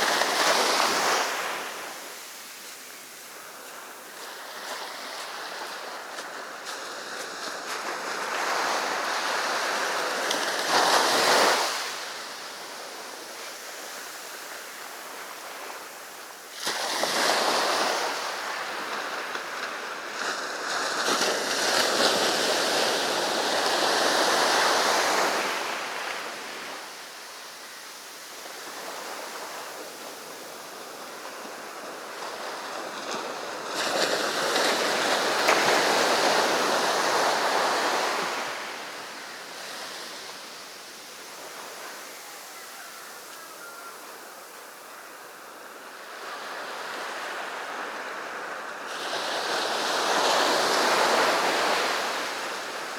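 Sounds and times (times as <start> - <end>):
ocean waves breaking: 0.0 - 27.4.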